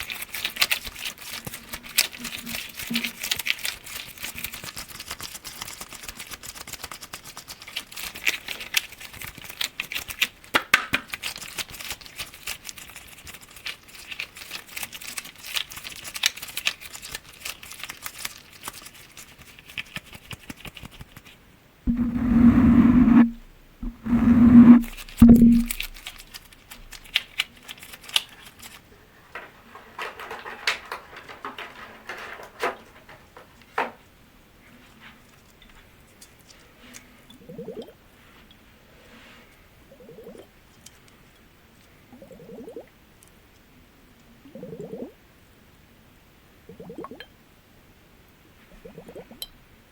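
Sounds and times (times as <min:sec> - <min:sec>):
loud sustained sounds: 0:21.9 - 0:25.9
low hum: 0:21.9 - 0:26.1.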